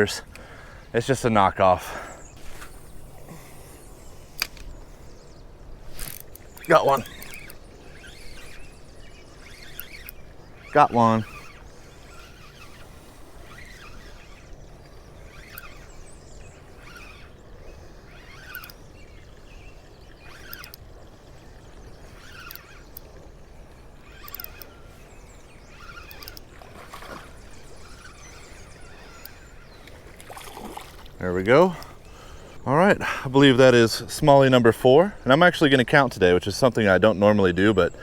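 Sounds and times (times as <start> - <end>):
faint short chirps and ticks: 2.2 - 32.6.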